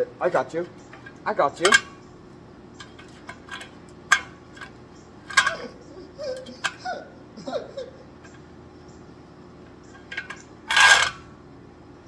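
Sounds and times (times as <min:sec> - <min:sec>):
hard objects clicking together: 0:02.8 - 0:05.8
short squeaks: 0:05.3 - 0:06.9.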